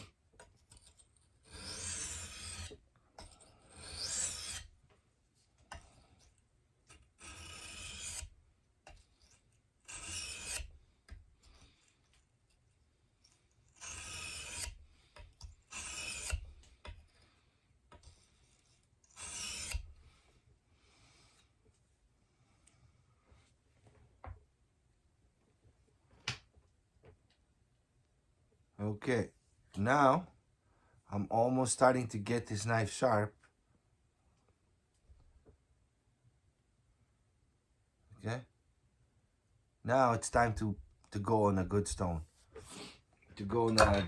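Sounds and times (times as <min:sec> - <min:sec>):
knife rasping on sharpening stone: 0:00.7 - 0:04.7, 0:06.9 - 0:08.3, 0:09.2 - 0:10.8, 0:13.8 - 0:17.0, 0:19.0 - 0:19.9.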